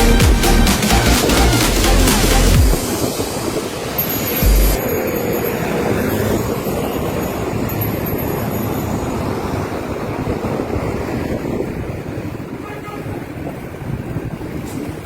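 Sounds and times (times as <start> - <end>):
heavy low buffet: 0.0 - 7.2
road noise: 0.0 - 15.0
wind rushing over microphone: 0.7 - 15.0.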